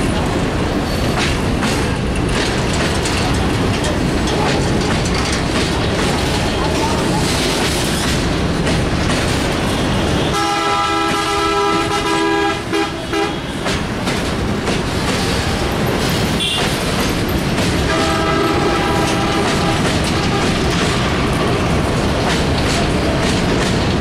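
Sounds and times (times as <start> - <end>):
freight train rumbling past: 0.0 - 24.0
wheels clattering over rail joints: 0.0 - 24.0
train horn: 9.8 - 13.6, 17.9 - 21.1.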